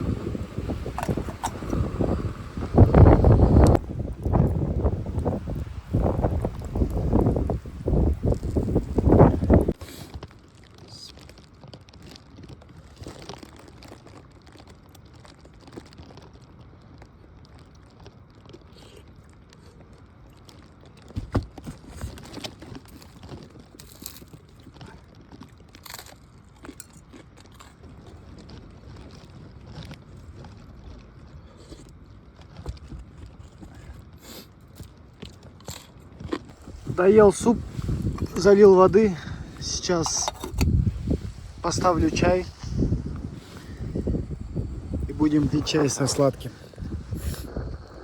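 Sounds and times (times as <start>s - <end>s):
faint chewing: 0.8s - 38.6s.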